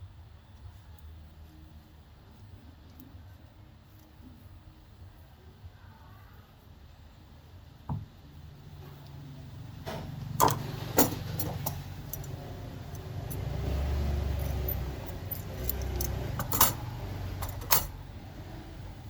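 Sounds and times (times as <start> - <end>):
metallic clicks and clinks: 10.4 - 18.0.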